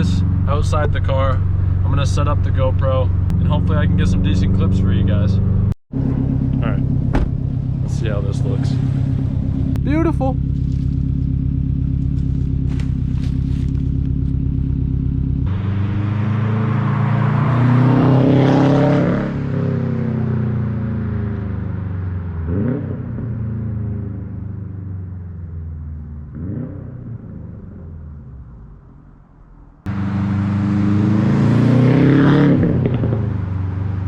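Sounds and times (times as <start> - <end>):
car engine idling: 0.0 - 17.2
car driving past and revving: 1.3 - 9.8, 15.4 - 28.5, 29.8 - 34.0.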